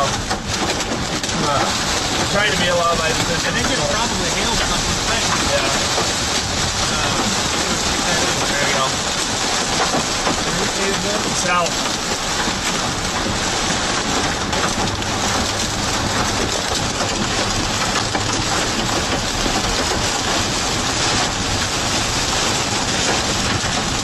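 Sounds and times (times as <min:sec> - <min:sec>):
engine and road hum: 0:00.0 - 0:24.0
heavy rain on car: 0:00.0 - 0:24.0.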